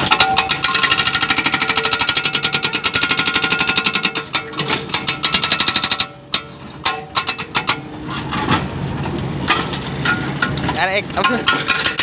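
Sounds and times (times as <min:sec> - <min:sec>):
hydraulic rock breaker hammering: 0:00.0 - 0:08.4, 0:11.2 - 0:12.0.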